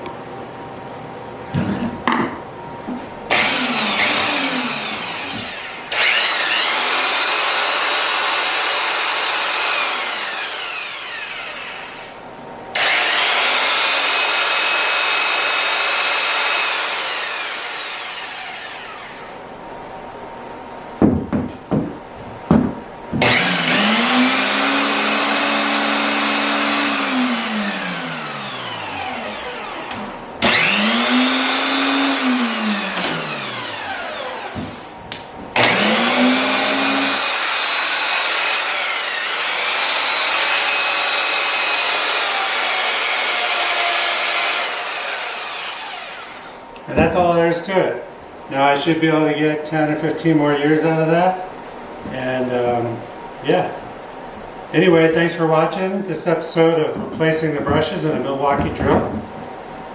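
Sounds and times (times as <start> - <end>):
drill trigger blips: 3.3 - 12.0, 23.2 - 46.4
electric drill motor whining: 3.3 - 12.1, 12.8 - 19.3, 23.2 - 34.9, 35.6 - 46.6.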